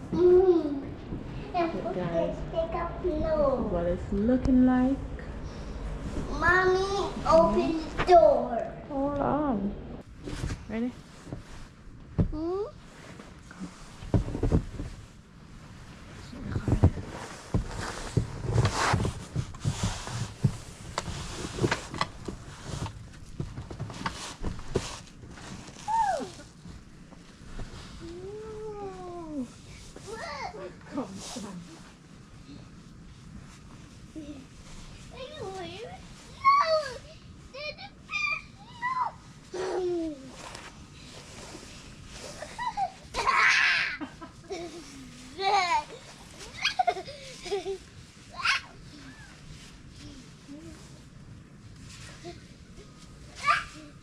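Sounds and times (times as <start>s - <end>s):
young child babbling and squealing: 25.9s - 26.4s, 36.4s - 40.3s, 48.3s - 49.4s, 53.4s - 54.0s.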